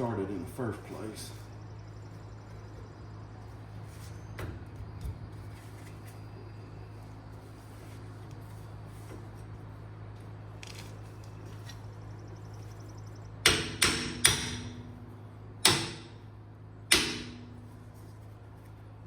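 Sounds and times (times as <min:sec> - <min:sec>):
low hum: 0:00.0 - 0:19.0
hammer striking metal: 0:13.4 - 0:14.9, 0:15.6 - 0:16.2, 0:16.9 - 0:17.6.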